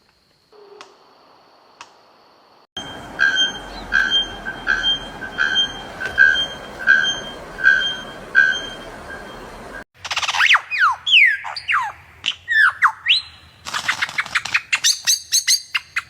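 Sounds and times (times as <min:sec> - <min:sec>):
steady background hiss: 0:00.0 - 0:09.8
bird calling: 0:02.8 - 0:16.0.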